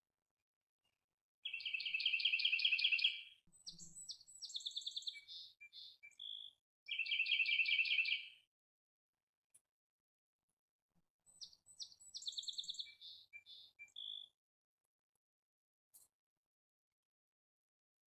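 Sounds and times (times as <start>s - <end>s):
bird chirps and whistles: 1.4s - 8.3s
songbird trilling: 1.4s - 8.3s, 11.4s - 14.2s.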